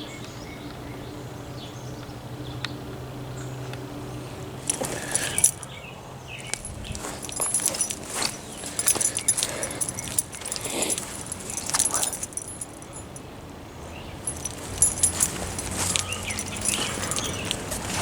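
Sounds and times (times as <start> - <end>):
jangling clicks and rustles: 4.6 - 13.4, 14.0 - 18.0.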